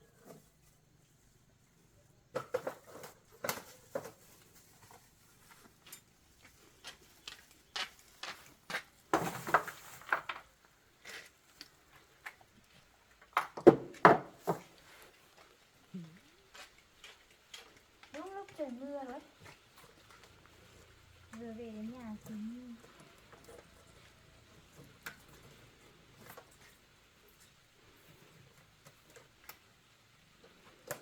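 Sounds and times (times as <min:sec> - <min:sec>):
hard objects knocking and clattering: 0:02.3 - 0:04.4, 0:13.2 - 0:14.8.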